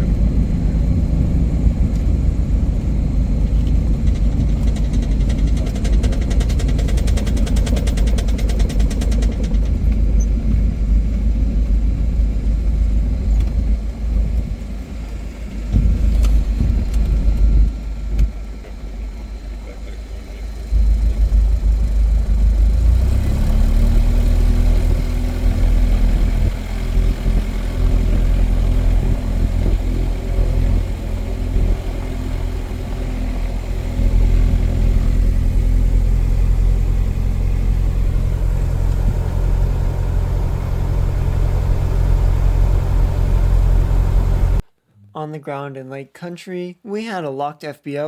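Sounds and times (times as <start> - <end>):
airplane engine and propeller drone: 0.0 - 44.6.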